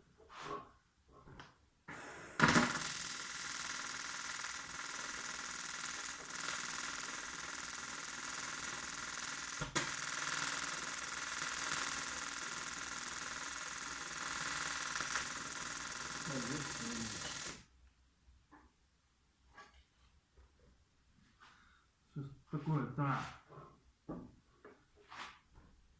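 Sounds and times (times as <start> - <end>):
welding arc buzzing hiss: 1.9 - 17.7.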